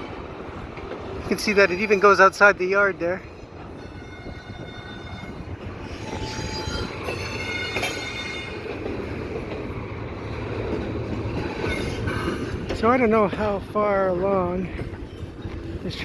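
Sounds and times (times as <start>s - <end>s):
railcars rumbling: 0.0s - 16.0s
train wheels squealing: 3.7s - 9.4s, 11.2s - 12.7s.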